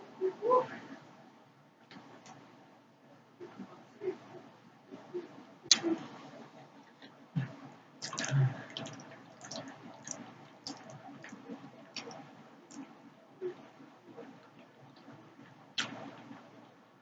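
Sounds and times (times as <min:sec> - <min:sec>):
wet chewing and slurping: 0:08.0 - 0:12.2.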